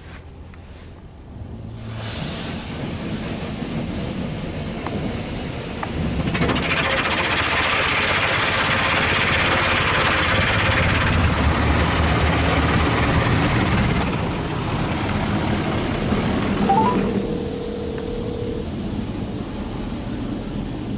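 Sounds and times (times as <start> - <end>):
car wash water spray hiss: 1.7 - 4.2
low machine rumble: 10.4 - 20.9.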